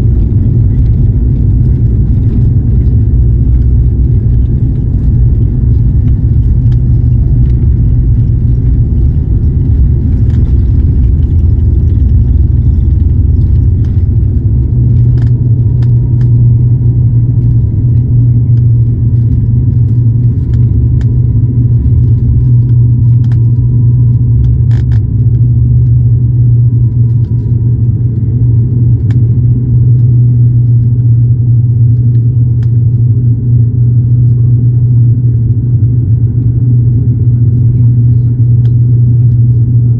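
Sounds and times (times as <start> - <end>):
turboprop cabin drone: 0.0 - 39.9.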